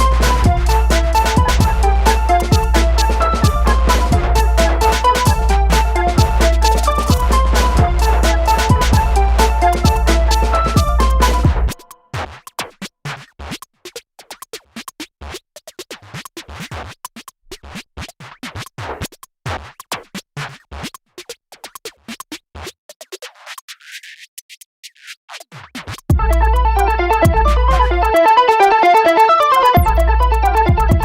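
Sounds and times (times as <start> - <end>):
electronic music beat with bass: 0.0 - 12.0, 26.1 - 31.0
scratch-like clicks and ticks: 0.0 - 26.4.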